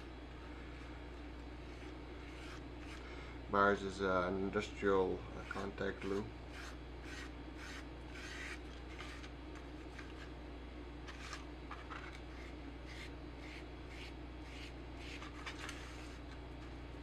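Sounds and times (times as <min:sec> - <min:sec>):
steady low hum: 0:00.0 - 0:17.0
glue brush scratching: 0:01.6 - 0:03.0, 0:06.5 - 0:09.3, 0:12.3 - 0:16.2.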